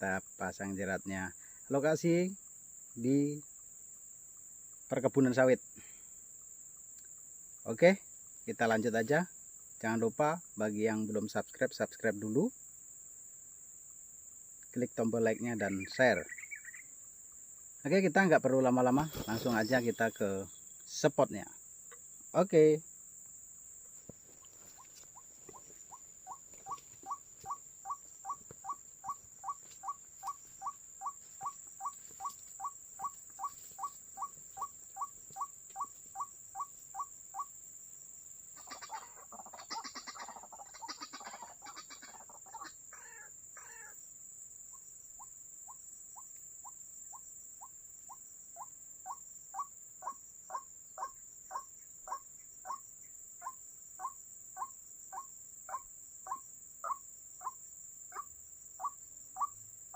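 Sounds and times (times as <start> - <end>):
waterhen calling repeated notes: 24.8 - 37.5.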